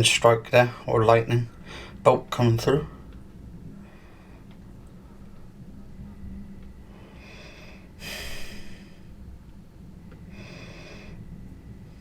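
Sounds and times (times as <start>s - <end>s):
low steady hum: 0.0s - 12.0s
man breathing: 1.6s - 2.0s, 3.8s - 4.6s, 6.9s - 9.4s, 10.2s - 11.4s.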